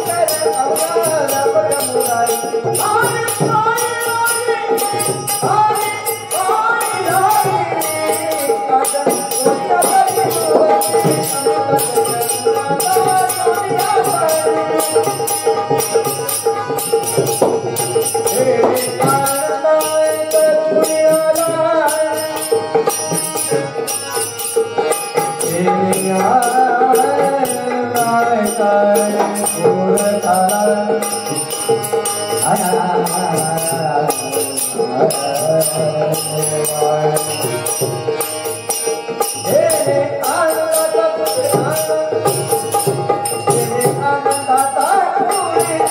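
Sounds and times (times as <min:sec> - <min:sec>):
jingling percussion: 0:00.0 - 0:45.9.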